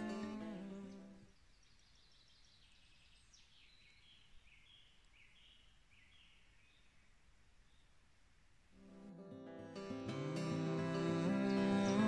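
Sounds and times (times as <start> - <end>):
songbird chirping and trilling: 0.0 - 8.0
background music: 9.0 - 12.0.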